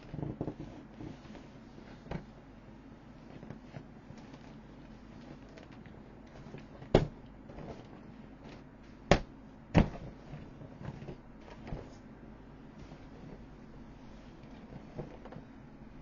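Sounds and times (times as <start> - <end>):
light clicking and handling noises: 3.2 - 9.0, 12.8 - 15.6.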